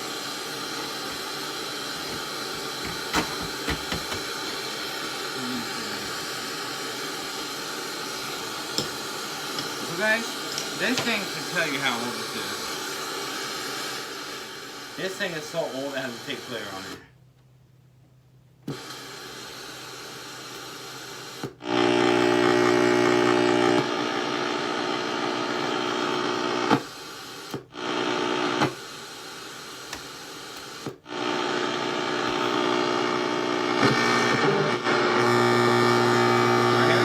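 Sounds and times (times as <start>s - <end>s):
loud speaker static with hum: 2.0s - 7.2s, 7.9s - 14.3s, 14.9s - 17.1s, 21.5s - 26.9s, 27.7s - 28.8s, 31.0s - 37.0s.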